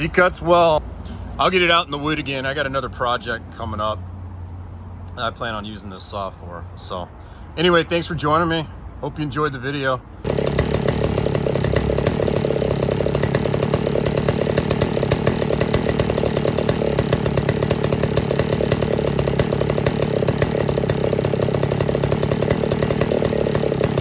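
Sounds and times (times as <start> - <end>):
two-stroke chainsaw running: 10.2 - 24.0.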